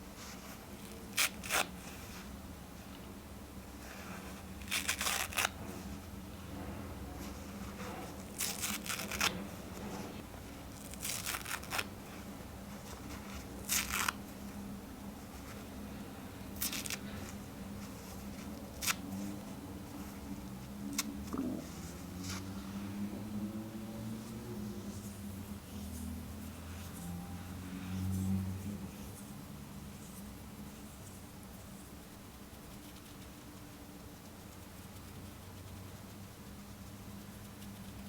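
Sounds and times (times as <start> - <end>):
faint steady hum: 0.0 - 38.0
paper towel tearing: 0.8 - 1.9, 4.6 - 5.6, 8.3 - 9.4, 10.8 - 12.0, 13.6 - 14.2, 16.6 - 17.2.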